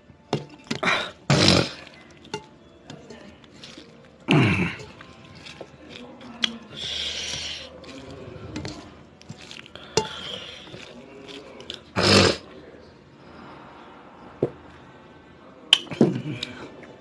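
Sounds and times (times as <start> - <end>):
dishes and utensils clinking: 0.3 - 11.9.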